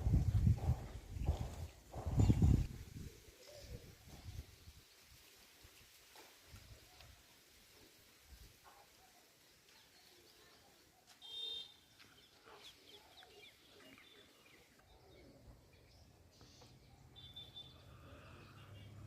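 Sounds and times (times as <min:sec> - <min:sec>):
bird calls and chirps: 0:00.5 - 0:04.9, 0:09.7 - 0:19.0.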